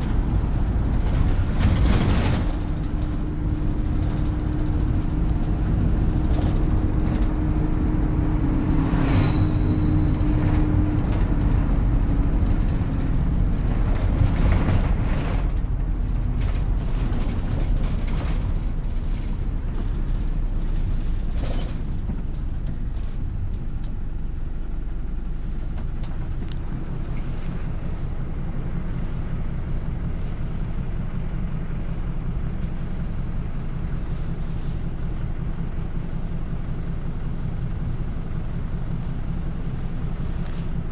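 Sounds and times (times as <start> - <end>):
bus engine rumble: 0.0 - 40.9
whine: 2.0 - 13.0
sharp high squeal: 6.4 - 11.4.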